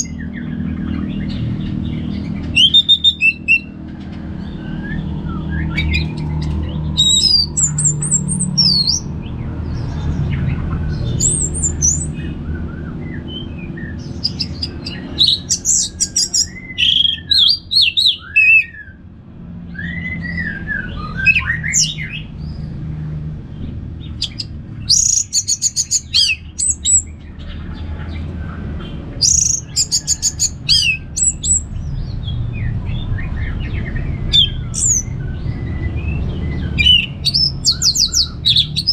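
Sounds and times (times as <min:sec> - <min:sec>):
thrush singing: 0:00.0 - 0:18.9, 0:32.4 - 0:38.9
low background rumble: 0:00.0 - 0:38.9.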